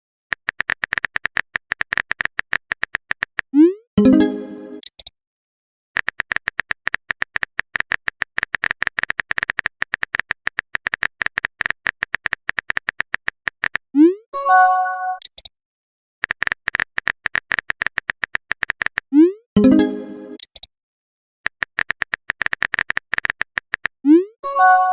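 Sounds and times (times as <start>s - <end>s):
phone keyboard typing beeps: 14.8s - 15.4s, 21.5s - 24.9s.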